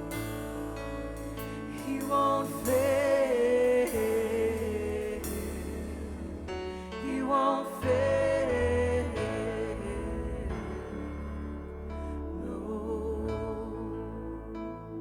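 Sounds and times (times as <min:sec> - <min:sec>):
worship band music: 0:00.0 - 0:15.0.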